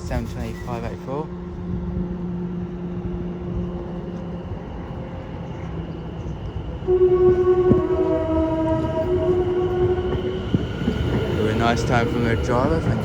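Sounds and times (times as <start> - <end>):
electric train humming: 0.0 - 13.0
two-tone train horn blast: 6.8 - 13.0.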